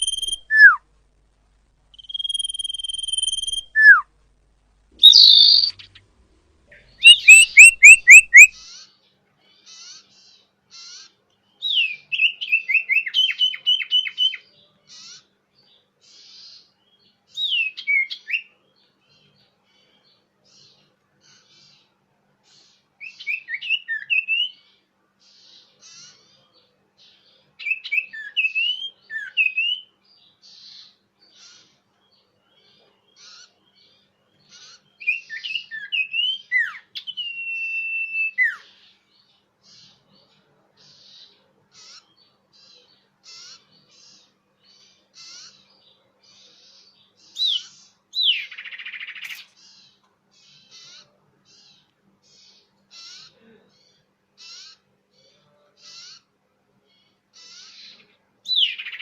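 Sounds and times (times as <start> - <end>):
bird whistling song: 0.0 - 0.8, 1.9 - 4.1, 5.0 - 6.0, 6.7 - 8.8, 11.6 - 15.1, 17.3 - 18.5, 23.0 - 24.6, 27.6 - 29.9, 34.6 - 38.7, 47.3 - 49.5, 58.5 - 59.0
faint short chirps: 0.0 - 0.8, 2.0 - 4.0, 5.0 - 6.0.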